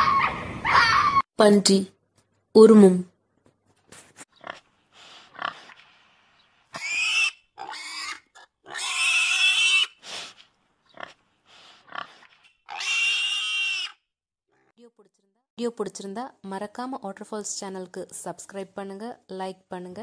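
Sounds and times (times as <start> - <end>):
pig grunting: 4.4 - 5.8, 10.9 - 14.7
pig squealing: 6.7 - 10.0, 11.8 - 14.7.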